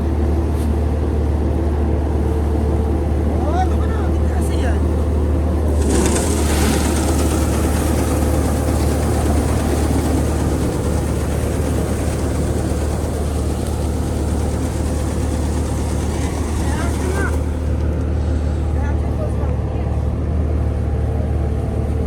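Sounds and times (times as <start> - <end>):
engine humming: 0.0 - 22.0
broad rushing noise: 3.4 - 19.3.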